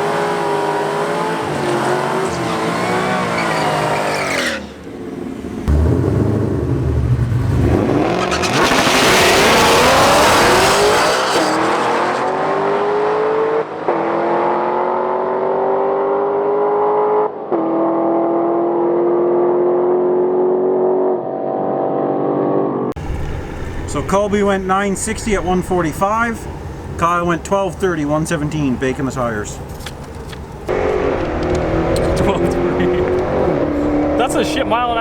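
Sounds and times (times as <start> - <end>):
drag car engines accelerating: 0.0 - 18.2, 30.7 - 35.0.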